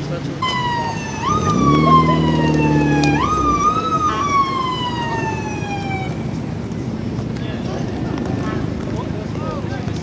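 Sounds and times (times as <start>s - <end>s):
siren wailing: 0.4s - 6.3s
car engine revving: 0.5s - 7.4s.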